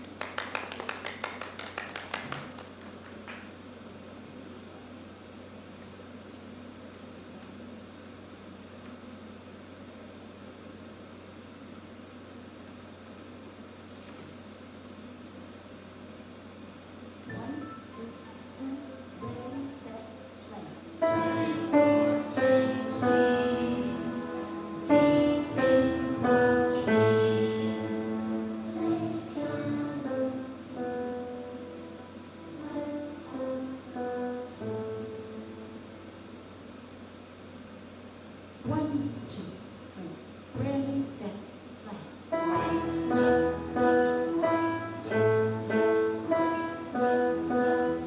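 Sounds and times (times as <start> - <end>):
solo piano melody: 17.2 - 36.5, 42.3 - 48.0
solo instrumental melody: 42.4 - 48.0.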